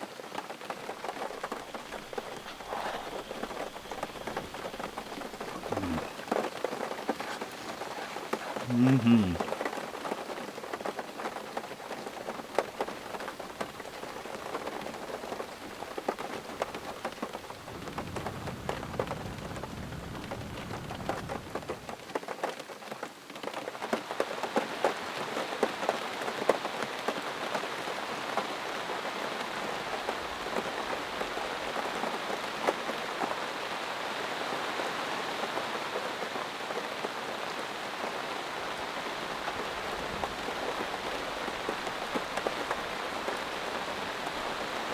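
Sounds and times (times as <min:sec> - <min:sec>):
heavy rain falling: 0:00.0 - 0:44.9
low rumble of thunder: 0:13.4 - 0:21.9.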